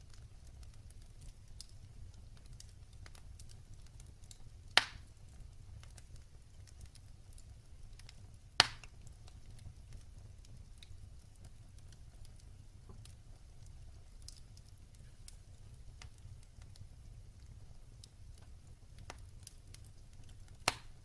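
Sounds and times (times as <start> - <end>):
fire ticking: 0.0 - 21.0
low rumble of flame: 0.0 - 21.0
loud sharp fire pop: 20.7 - 20.9.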